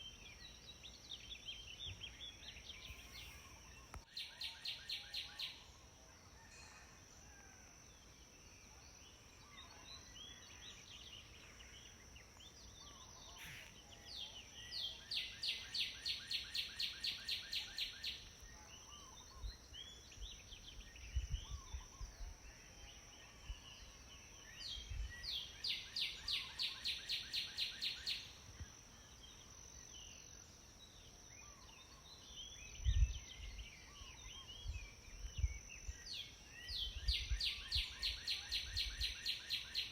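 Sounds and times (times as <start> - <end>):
sparrows chirping: 0.0 - 5.6, 9.8 - 18.2.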